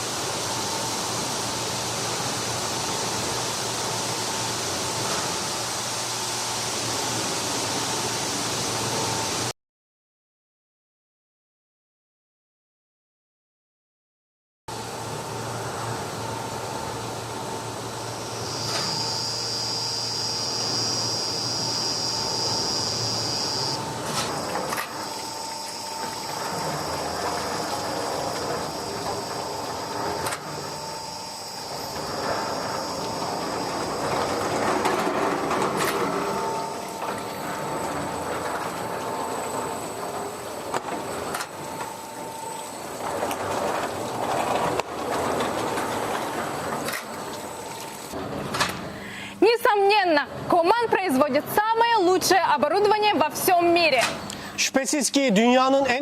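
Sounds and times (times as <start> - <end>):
machine mechanical hum: 0.0 - 9.5, 14.7 - 56.0
high steady whine: 14.7 - 48.7.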